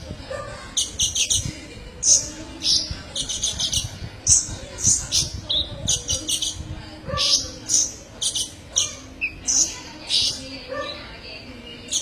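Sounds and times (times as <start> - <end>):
bird singing high sharp chirps: 7.2 - 10.5.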